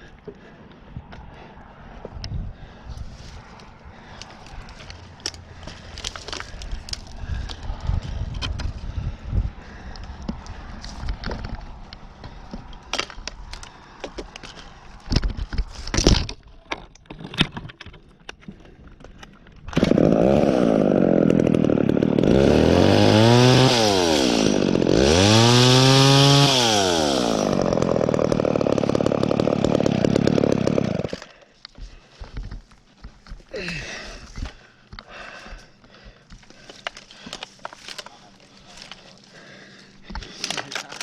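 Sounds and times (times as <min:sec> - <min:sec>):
chainsaw engine revving: 0:19.7 - 0:31.3.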